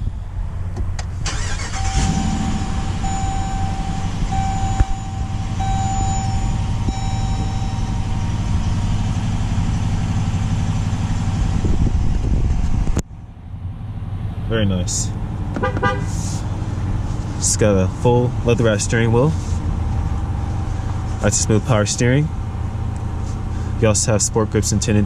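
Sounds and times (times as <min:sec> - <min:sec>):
car engine starting and idling: 0:00.2 - 0:25.0
car chime beeping: 0:01.3 - 0:09.3.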